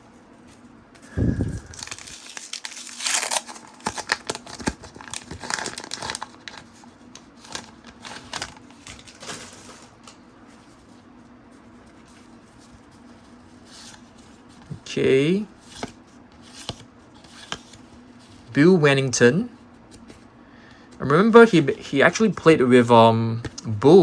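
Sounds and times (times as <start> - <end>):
cards being handled: 0.4 - 9.4, 15.6 - 18.6
wrapper crinkling and tearing: 1.0 - 10.2.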